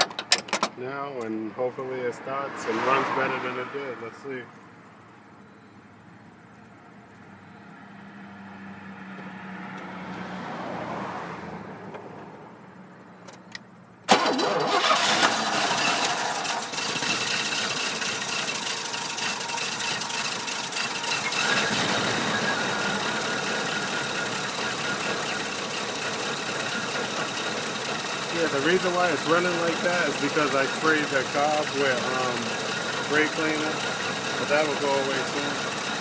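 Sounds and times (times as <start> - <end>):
car engine starting and running rough: 14.1 - 36.0.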